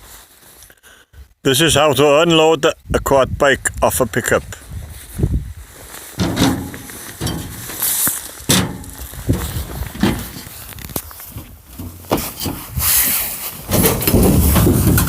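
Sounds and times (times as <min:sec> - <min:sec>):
footsteps: 0:04.6 - 0:15.0
knocks: 0:06.2 - 0:07.8.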